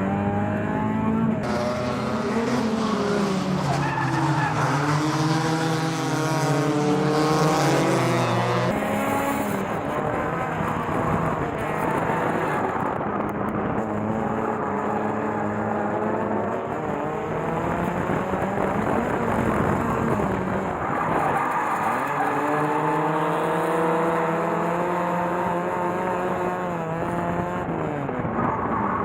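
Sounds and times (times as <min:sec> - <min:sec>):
car engine revving hard: 0:14.1 - 0:27.8.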